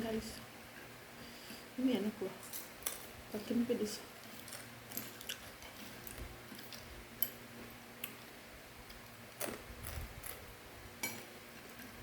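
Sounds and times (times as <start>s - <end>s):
crunchy snack being chewed: 4.3s - 6.9s, 9.0s - 10.4s.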